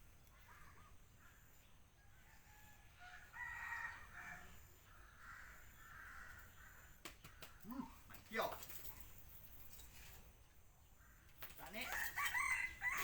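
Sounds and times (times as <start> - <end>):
faint rooster crowing: 0.4 - 7.0, 11.1 - 13.0.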